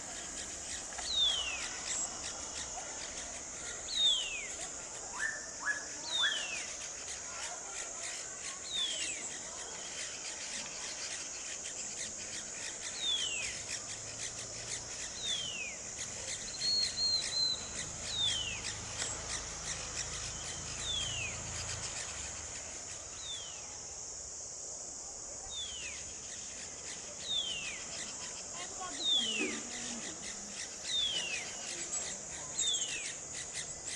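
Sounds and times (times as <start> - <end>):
high insect buzz: 6.0 - 33.9
bird trill: 7.8 - 22.2, 25.6 - 33.9.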